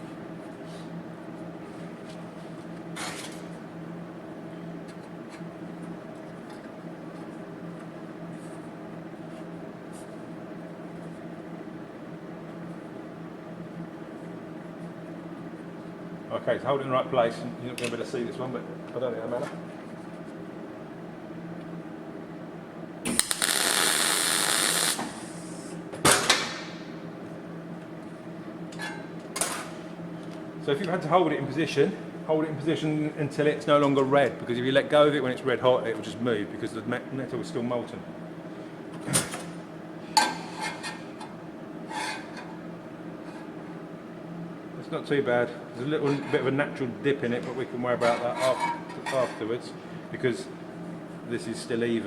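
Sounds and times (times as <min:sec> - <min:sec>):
steady low hum: 0:00.0 - 0:52.0
welding arc crackling: 0:23.1 - 0:25.7.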